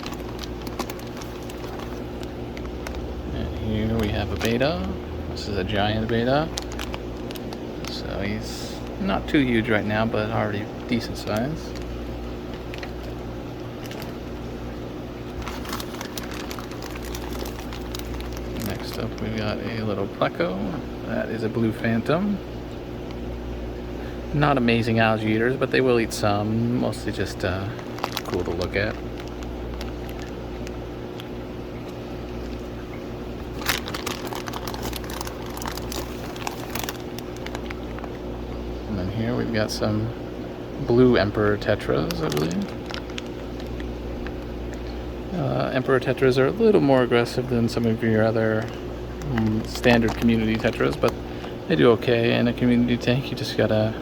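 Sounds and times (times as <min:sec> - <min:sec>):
crackles and clicks: 0:00.0 - 0:09.0, 0:10.8 - 0:19.4, 0:27.0 - 0:38.8, 0:41.7 - 0:46.2, 0:47.4 - 0:52.2
plastic bag rustling: 0:00.0 - 0:20.1, 0:26.1 - 0:38.3, 0:40.9 - 0:53.9
electrical hum: 0:00.0 - 0:54.0.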